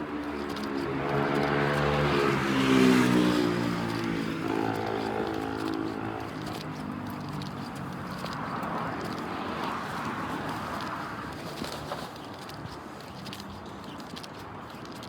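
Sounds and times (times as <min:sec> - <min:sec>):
motor vehicle passing by: 0:00.0 - 0:11.9.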